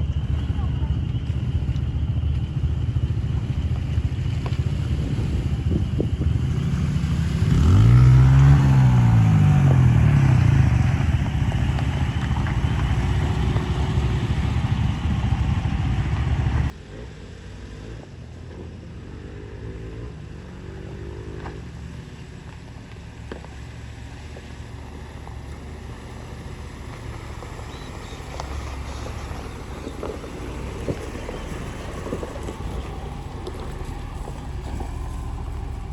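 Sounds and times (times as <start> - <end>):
pickup truck engine revving: 3.0 - 16.7, 23.3 - 35.9.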